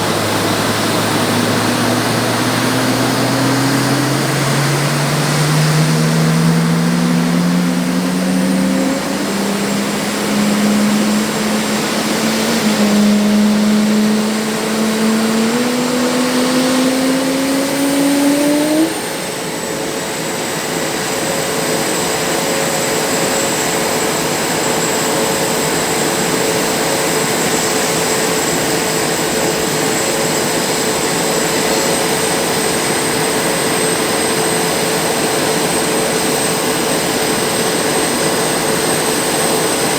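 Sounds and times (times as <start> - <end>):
high-pitched whine: 0.0 - 39.9
jet engines running loud: 0.0 - 39.9.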